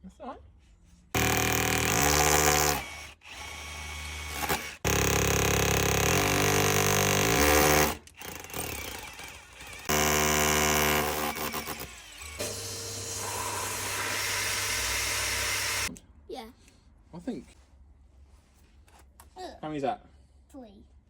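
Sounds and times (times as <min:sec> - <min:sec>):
power drill boring into wall: 0:01.2 - 0:15.9.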